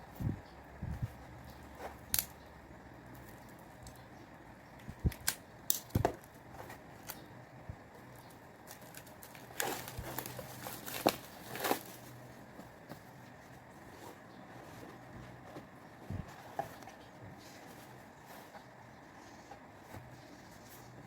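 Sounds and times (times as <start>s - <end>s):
packaging rustle: 8.7s - 13.2s.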